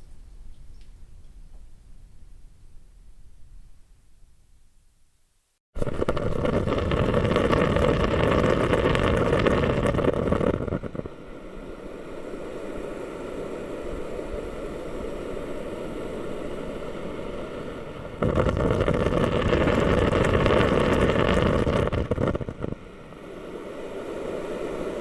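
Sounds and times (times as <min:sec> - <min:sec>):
humidifier bubbling: 0:05.8 - 0:25.0.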